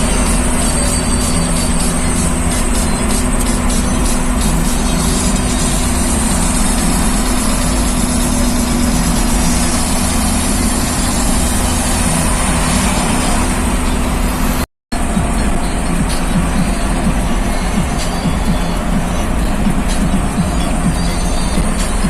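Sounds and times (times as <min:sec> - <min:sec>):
truck engine droning: 0:00.0 - 0:22.0.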